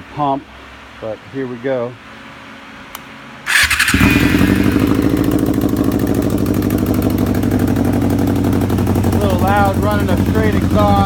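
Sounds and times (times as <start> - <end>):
motorcycle starter cranking: 3.5 - 10.0
motorcycle engine idling fast: 3.5 - 11.0.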